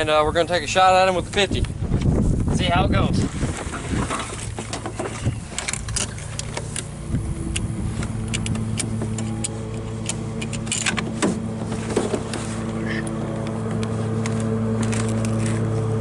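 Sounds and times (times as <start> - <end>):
vehicle engine idling: 5.4 - 16.0.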